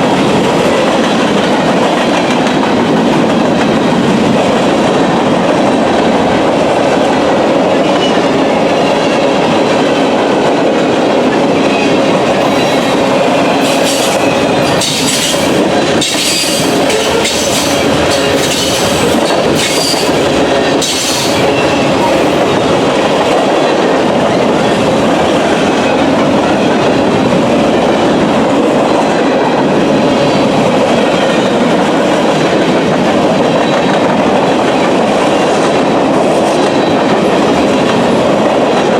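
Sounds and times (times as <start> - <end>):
wheels clacking over rails: 0.0 - 27.4
freight train rumbling by: 0.0 - 38.9
high-pitched wheel squeals: 16.0 - 20.2.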